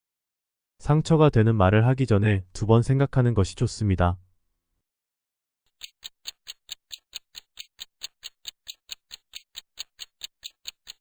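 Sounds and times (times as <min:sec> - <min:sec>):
clock-style ticking: 0:05.7 - 0:11.0.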